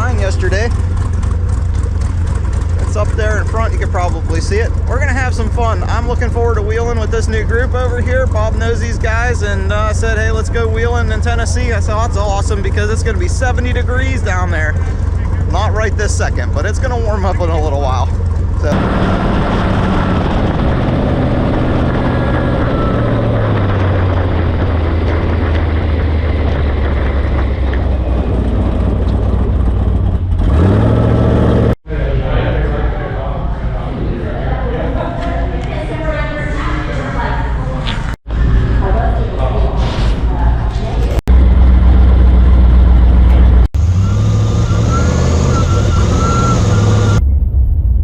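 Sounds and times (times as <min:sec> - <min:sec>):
vehicle engine droning: 0:00.0 - 0:48.0.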